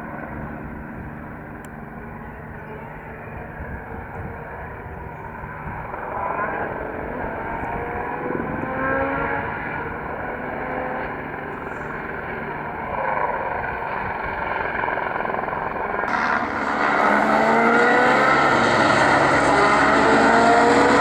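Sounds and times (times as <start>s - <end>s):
rally car engine at full throttle: 6.1s - 12.0s, 16.1s - 21.0s.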